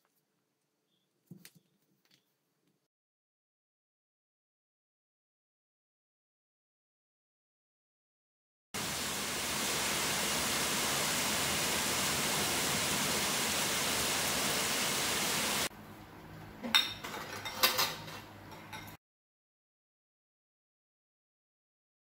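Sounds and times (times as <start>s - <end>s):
heavy rain pouring on trees: 8.8s - 15.7s.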